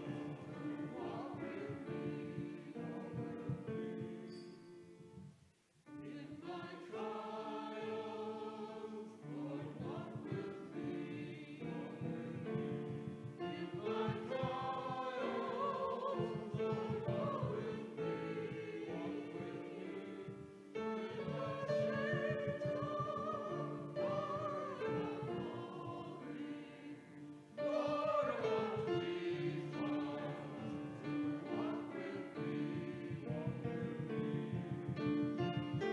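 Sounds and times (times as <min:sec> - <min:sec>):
voices singing sacred music: 0:00.0 - 0:05.3, 0:05.9 - 0:35.9
instrumental accompaniment: 0:09.4 - 0:35.9.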